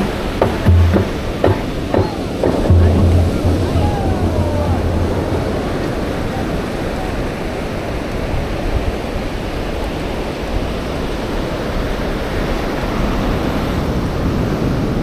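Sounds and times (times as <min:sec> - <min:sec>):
surf rushing on beach: 0:00.0 - 0:09.7.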